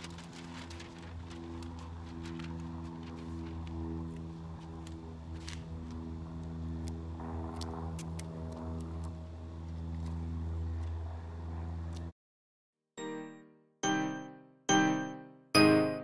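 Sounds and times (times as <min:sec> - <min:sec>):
light clicks and crinkles: 0:00.0 - 0:09.2
low machine hum: 0:00.0 - 0:12.1.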